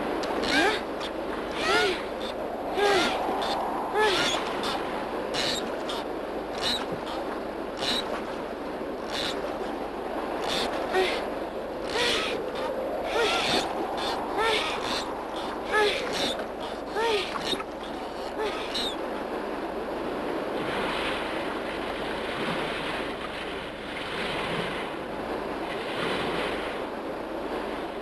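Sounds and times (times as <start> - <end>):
waves washing on shore: 0.0 - 28.0
bird cries: 1.5 - 4.8, 18.4 - 19.0.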